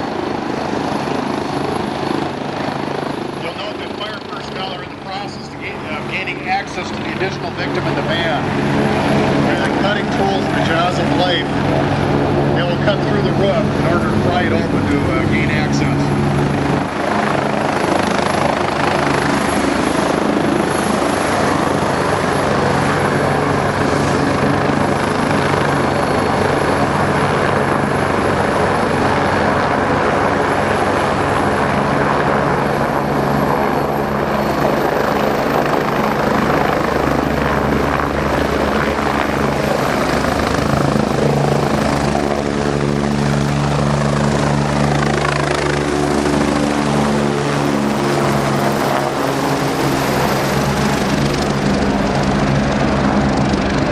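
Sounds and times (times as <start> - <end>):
helicopter rotor and engine: 0.0 - 53.9
high turbine whine: 0.0 - 53.9.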